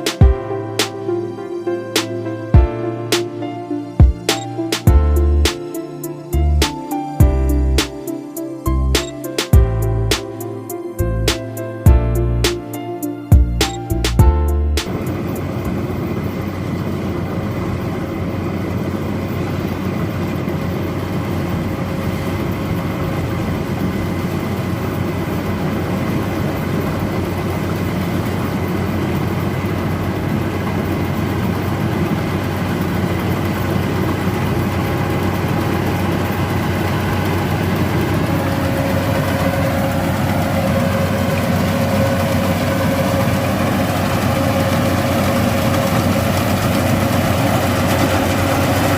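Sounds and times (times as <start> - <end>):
diesel engine running: 0.0 - 48.9
steady whine: 0.0 - 48.9.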